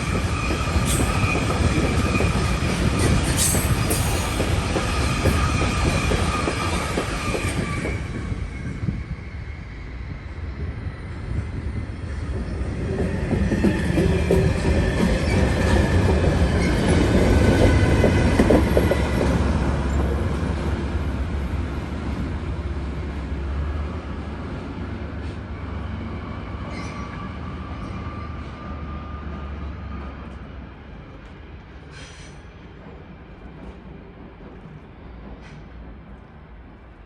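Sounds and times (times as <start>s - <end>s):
train rumbling past: 0.0s - 37.0s
high wheel squeal: 0.3s - 10.4s.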